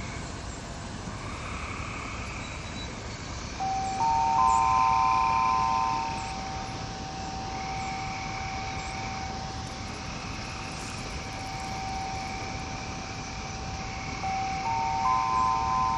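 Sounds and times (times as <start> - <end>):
background hiss: 0.0 - 15.9
chimes ringing: 3.6 - 8.0, 14.2 - 15.9.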